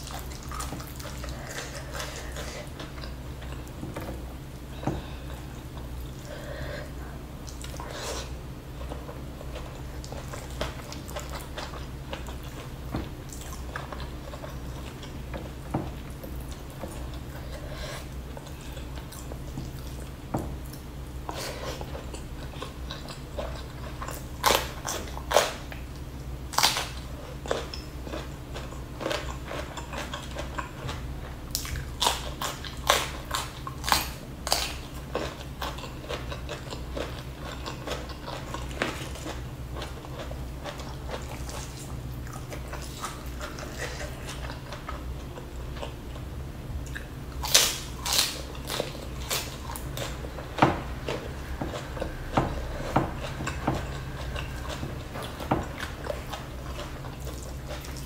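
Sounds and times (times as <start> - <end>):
chewing and crunching food: 0.0 - 58.0
steady low hum: 0.0 - 58.0.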